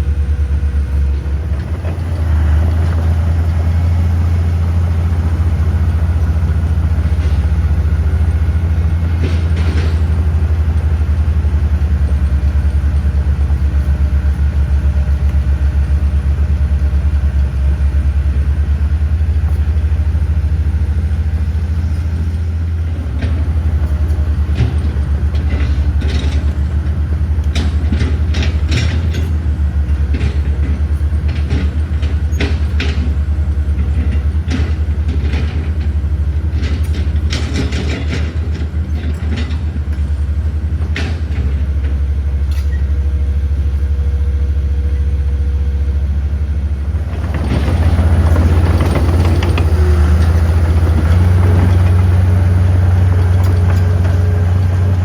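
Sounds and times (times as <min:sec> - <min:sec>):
heavy diesel engine droning: 0:00.0 - 0:55.0
metal clanks and knocks: 0:46.8 - 0:55.0.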